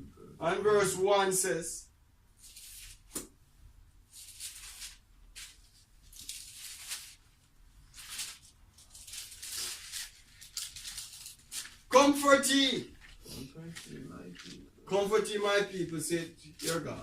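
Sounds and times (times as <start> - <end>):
paper pages turning: 4.1 - 11.9, 12.9 - 14.7, 16.6 - 17.0.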